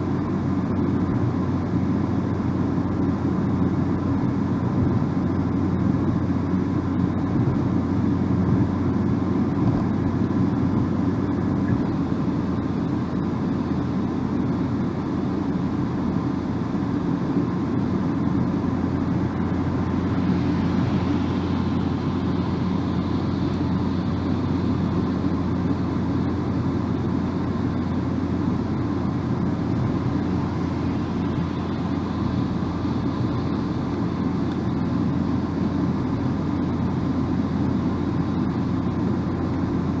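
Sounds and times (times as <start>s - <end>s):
road and tyre rumble in car: 0.0s - 40.0s.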